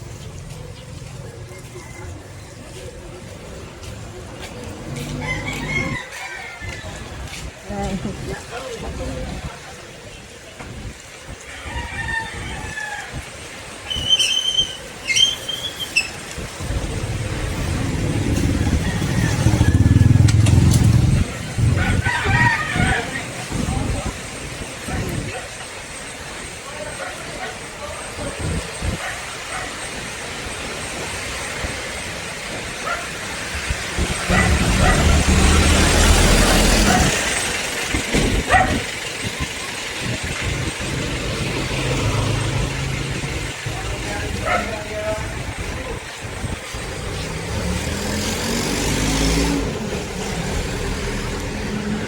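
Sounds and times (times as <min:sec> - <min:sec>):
motor vehicle engine hum: 0:00.0 - 0:06.0, 0:16.2 - 0:22.3, 0:27.4 - 0:52.0
wind and road noise: 0:00.0 - 0:52.0
dog barking: 0:29.0 - 0:29.8, 0:32.8 - 0:33.2, 0:34.2 - 0:35.3, 0:36.8 - 0:37.2, 0:38.4 - 0:38.9, 0:44.4 - 0:44.8.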